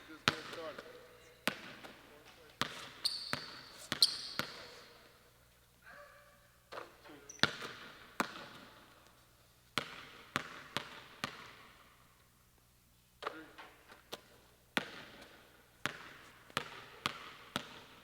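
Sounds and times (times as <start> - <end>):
basketballs bouncing on wooden floor: 0.2 - 5.2, 6.7 - 9.0, 9.8 - 11.8, 14.1 - 18.0.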